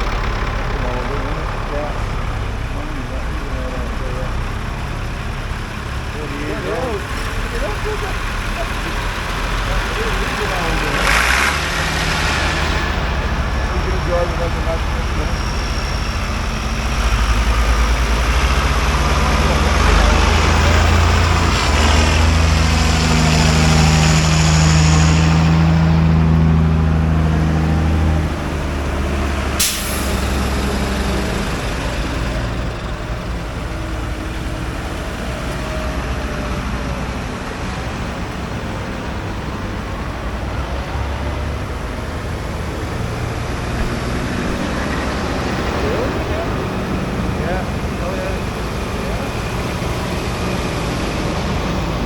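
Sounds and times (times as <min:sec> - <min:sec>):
tractor engines driving past: 0:00.0 - 0:52.0.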